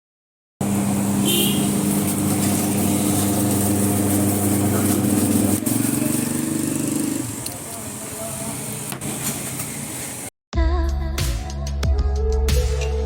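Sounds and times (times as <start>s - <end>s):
motor running hum: 0.6s - 7.8s.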